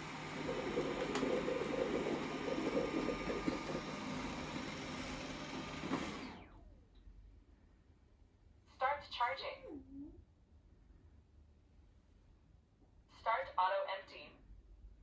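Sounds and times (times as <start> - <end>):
robot vacuum whirring: 0.0 - 6.6
motor winding down whine: 0.0 - 6.7.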